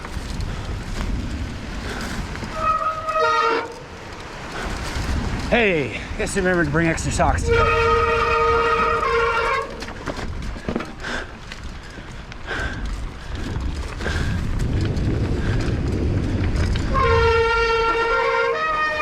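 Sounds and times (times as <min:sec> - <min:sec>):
low rumble: 0:00.0 - 0:18.4
loud horn blasts: 0:02.6 - 0:03.9, 0:07.3 - 0:09.8, 0:16.9 - 0:19.0.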